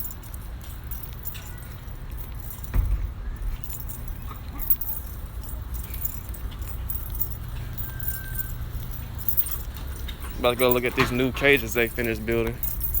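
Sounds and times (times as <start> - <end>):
metallic jingling: 0.0 - 13.0
thump: 2.6 - 3.3.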